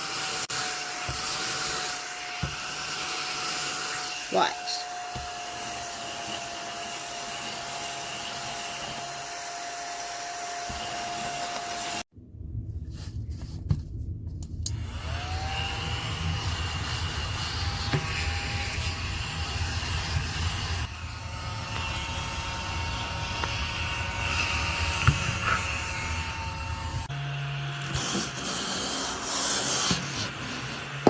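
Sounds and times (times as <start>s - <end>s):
small vacuum cleaner whine: 0.0s - 12.1s, 14.7s - 31.0s
deeper motor hum: 12.1s - 27.9s.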